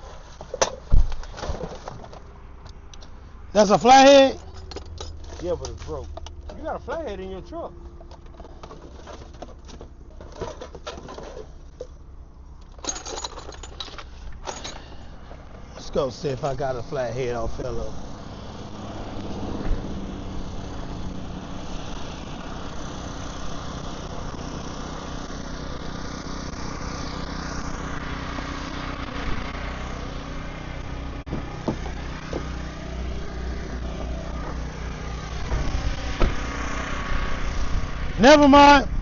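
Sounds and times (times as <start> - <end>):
engine idling: 3.6 - 38.8
short knocks: 31.3 - 32.6.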